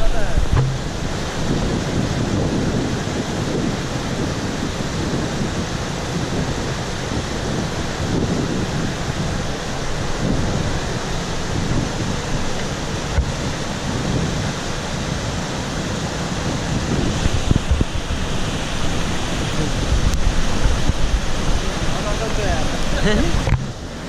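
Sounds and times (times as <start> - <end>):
mountain stream rushing: 0.0 - 24.0
low bumps on microphone: 0.4 - 1.1, 23.4 - 23.8.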